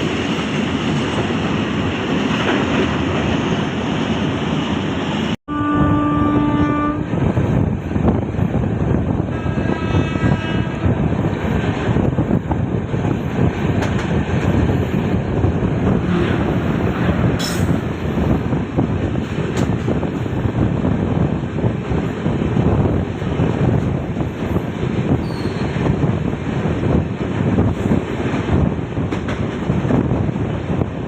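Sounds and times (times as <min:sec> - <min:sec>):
train wheels rumbling on track: 0:00.0 - 0:31.0
train horn: 0:05.5 - 0:07.2, 0:09.2 - 0:11.0, 0:16.0 - 0:16.6.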